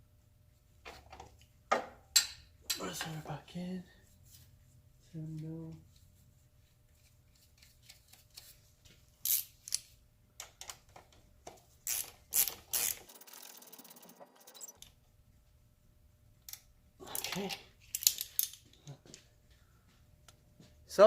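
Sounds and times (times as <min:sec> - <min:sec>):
socket ratchet clicking: 0:09.2 - 0:09.8, 0:11.9 - 0:14.7.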